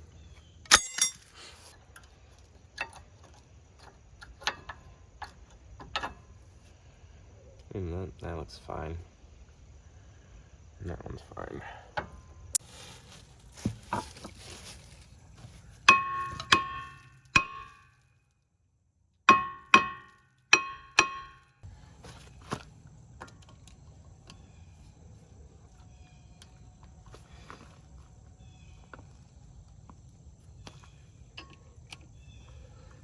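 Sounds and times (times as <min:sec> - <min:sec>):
metal part struck ringing: 0:00.7 - 0:01.3, 0:15.9 - 0:17.9, 0:19.3 - 0:21.5.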